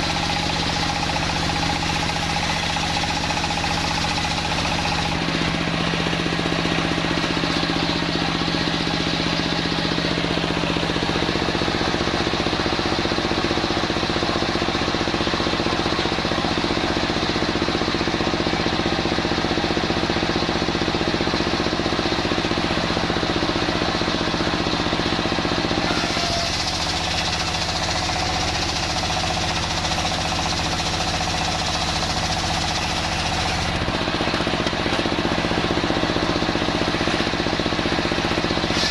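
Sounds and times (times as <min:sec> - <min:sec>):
circular saw cutting timber: 0:00.0 - 0:11.8, 0:25.7 - 0:38.9.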